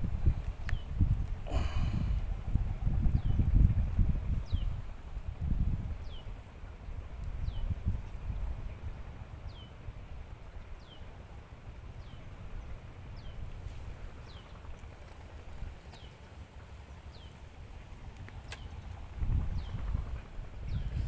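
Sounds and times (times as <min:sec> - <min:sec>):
low rumble: 0:07.0 - 0:21.0.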